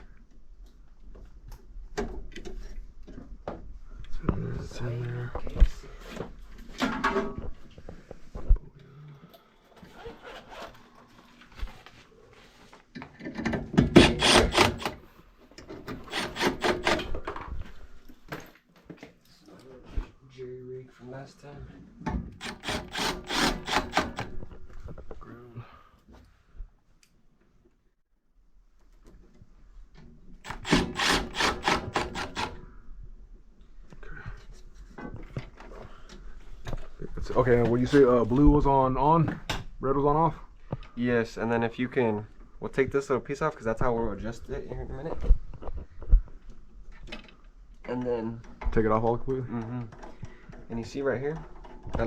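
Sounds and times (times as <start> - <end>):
tools clicking and rubbing: 15.9 - 17.2.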